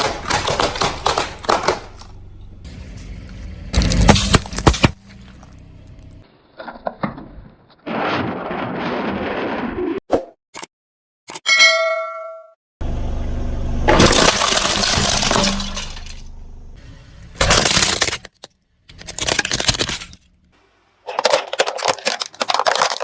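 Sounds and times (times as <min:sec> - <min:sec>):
tyres crushing brittle objects: 0:00.0 - 0:02.2, 0:03.7 - 0:06.1, 0:14.0 - 0:16.2, 0:17.4 - 0:20.3, 0:21.0 - 0:23.0
metallic ding: 0:11.5 - 0:12.6.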